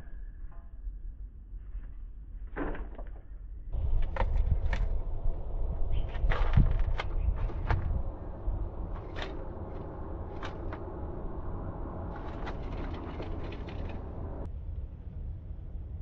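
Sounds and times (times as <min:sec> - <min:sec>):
low outdoor rumble: 0:03.2 - 0:16.0.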